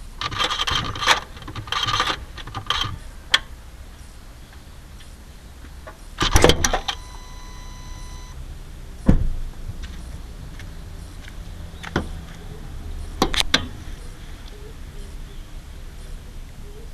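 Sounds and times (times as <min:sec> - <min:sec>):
car engine humming: 0:00.0 - 0:16.9.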